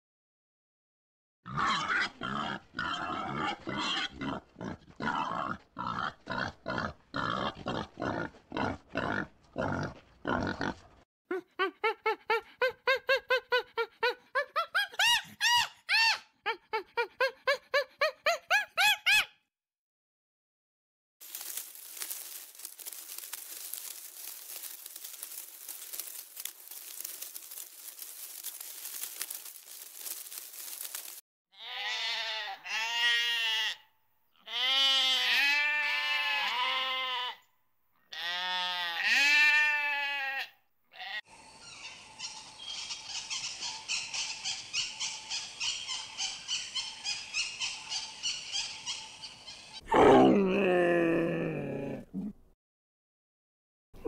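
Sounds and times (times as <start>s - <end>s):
sheep bleating: 31.6s - 33.8s, 34.4s - 37.4s, 38.1s - 41.2s.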